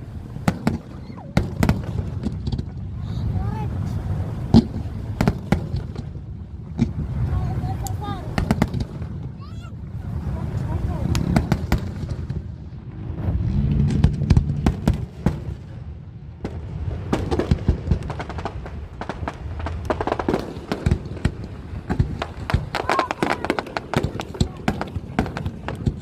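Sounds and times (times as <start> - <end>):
firecrackers cracking: 0.0 - 2.8, 7.7 - 9.4, 10.5 - 12.6, 13.6 - 26.0
crowd voices: 7.2 - 13.2, 22.3 - 26.0.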